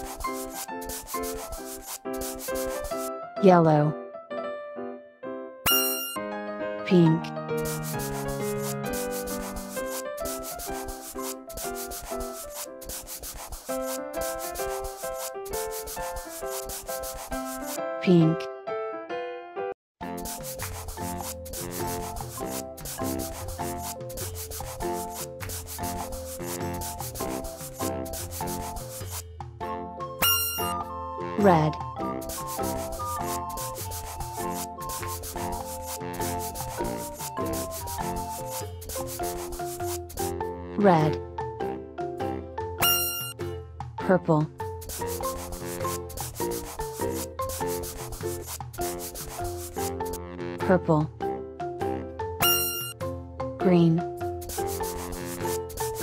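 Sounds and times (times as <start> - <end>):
marker scribbling on paper: 0.0 - 3.1, 7.6 - 18.4, 20.0 - 29.2, 30.2 - 30.8, 32.0 - 40.3, 42.8 - 43.4, 44.8 - 50.2, 52.4 - 53.0, 54.2 - 56.0
light children's tune: 5.6 - 29.3, 29.9 - 56.0.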